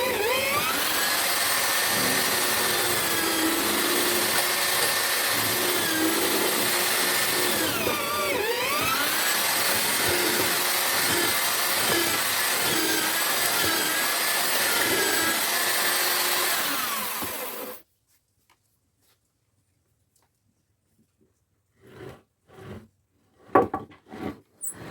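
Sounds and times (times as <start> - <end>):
drill motor whining: 0.0 - 17.8
mortiser cutting into wood: 0.0 - 17.8, 23.5 - 24.9.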